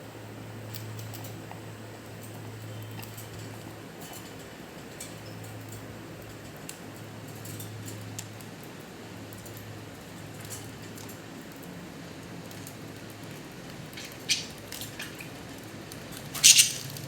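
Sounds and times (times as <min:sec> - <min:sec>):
budgerigars clicking and ticking: 0:13.9 - 0:15.3, 0:16.4 - 0:17.0.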